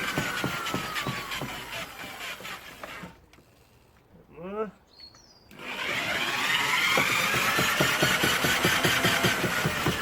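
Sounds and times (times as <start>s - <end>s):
drill motor whine: 0.0s - 2.9s, 5.5s - 10.0s.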